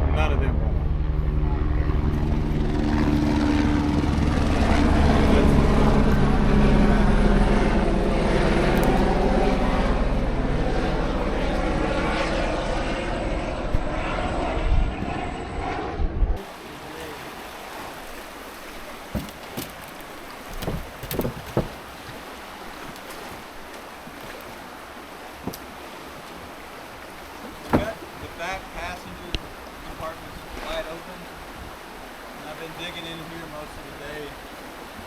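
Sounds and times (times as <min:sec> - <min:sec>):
propeller aircraft engine overhead: 0:00.0 - 0:18.7
scattered knocks: 0:20.6 - 0:21.8.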